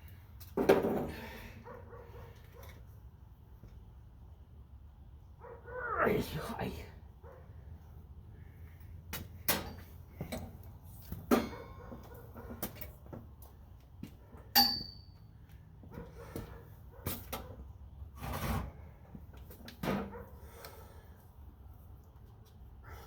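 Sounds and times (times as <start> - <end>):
metallic clink with ring: 14.6 - 15.2.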